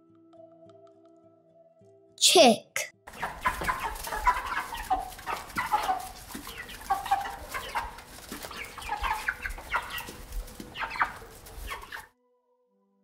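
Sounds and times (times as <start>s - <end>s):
baby chicks peeping: 3.1s - 12.1s.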